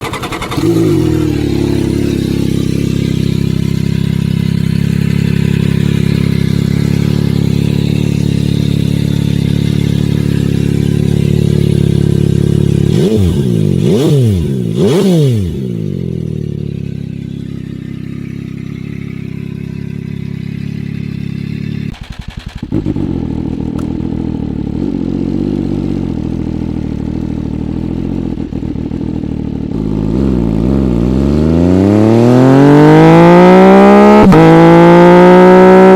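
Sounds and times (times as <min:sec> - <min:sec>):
engine revving: 0:00.0 - 0:16.8, 0:29.8 - 0:35.9
motorcycle engine idling: 0:00.0 - 0:30.2.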